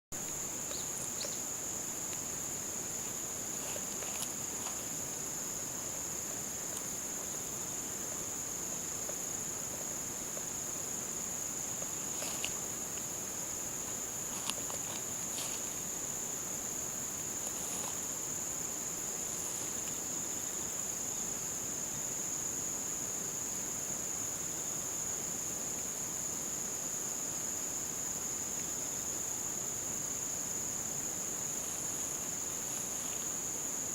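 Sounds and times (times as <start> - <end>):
crickets chorus: 0.1 - 33.9
faint chirps: 0.2 - 2.3.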